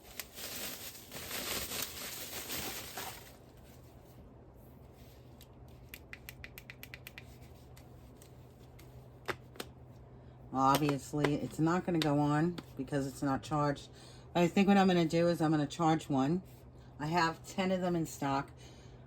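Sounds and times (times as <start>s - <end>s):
packaging rustling and scraping: 0.0s - 4.0s.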